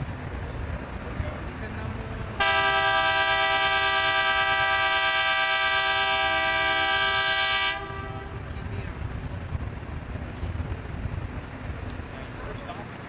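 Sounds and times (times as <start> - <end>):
low rumbling background: 0.0 - 2.6, 6.4 - 13.0
ferry horn blast: 2.0 - 8.5.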